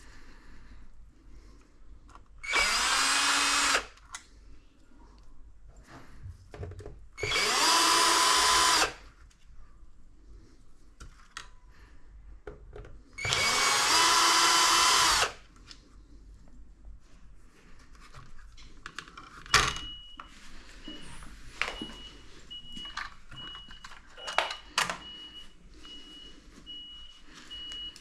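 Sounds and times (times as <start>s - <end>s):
cordless drill motor spinning: 2.4s - 4.0s, 7.2s - 9.0s, 13.2s - 15.4s.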